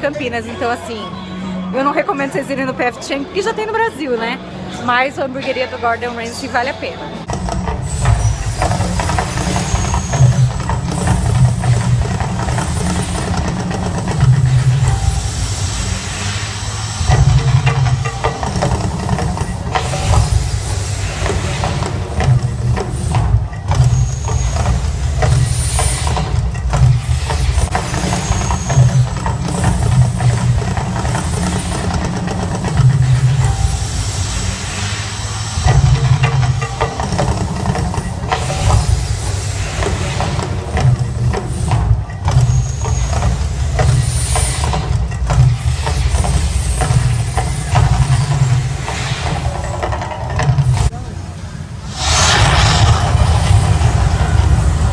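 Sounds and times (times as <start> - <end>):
fire effects hissing: 7.2 - 50.9, 51.7 - 54.9
deep rumble: 7.3 - 42.4, 51.8 - 54.9.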